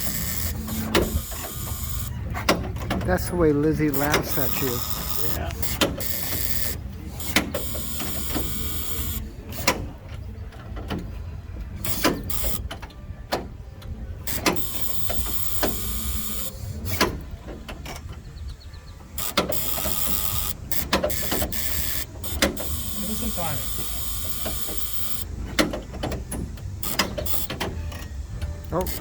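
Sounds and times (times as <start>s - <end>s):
old car engine idling unevenly: 0.0s - 29.0s.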